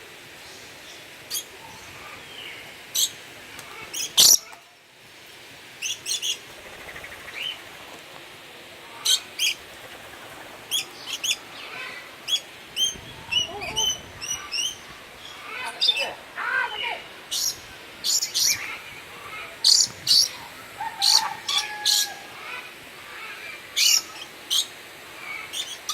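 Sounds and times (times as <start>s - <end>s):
small birds chirping: 5.8s - 7.7s, 8.9s - 20.5s, 22.4s - 25.9s.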